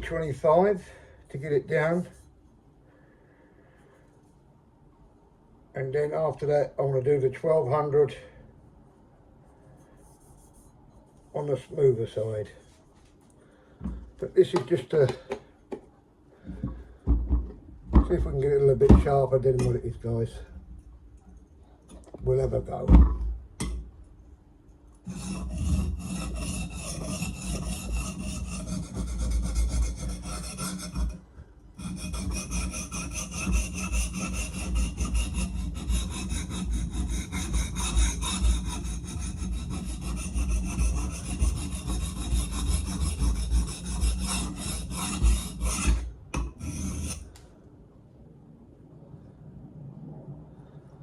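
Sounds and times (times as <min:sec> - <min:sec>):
blade scraping on sharpening plate: 0:25.1 - 0:31.2, 0:31.8 - 0:47.3.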